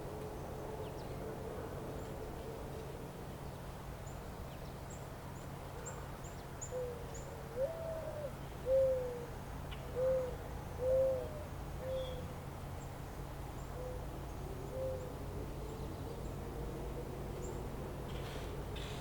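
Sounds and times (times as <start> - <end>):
bird hooting: 7.6 - 9.3, 9.9 - 12.2, 14.7 - 15.1.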